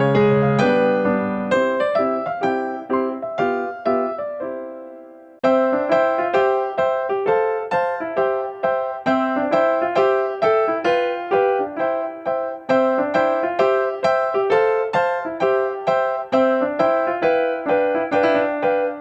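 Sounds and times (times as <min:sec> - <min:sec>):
bouncy keyboard tune: 0:00.0 - 0:19.0.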